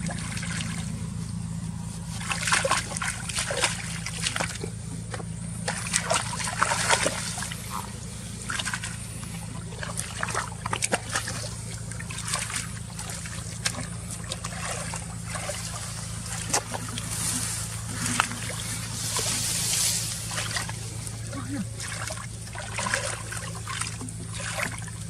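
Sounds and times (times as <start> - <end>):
low hum: 0.0 - 25.0
shallow water splashing: 0.0 - 25.0.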